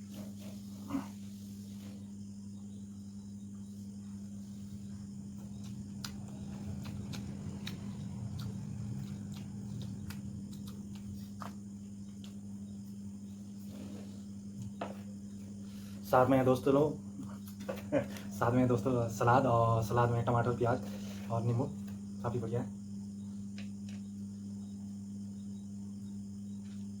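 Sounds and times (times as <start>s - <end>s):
steady low hum: 0.0s - 27.0s
chewing and mouth clicks: 4.8s - 12.6s.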